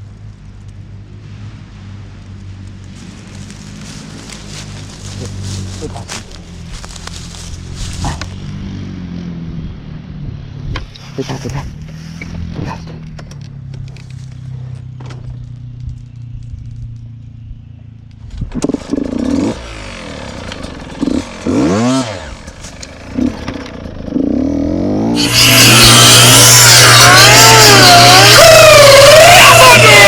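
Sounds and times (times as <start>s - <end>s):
dirt bike engine revving: 18.4s - 30.0s.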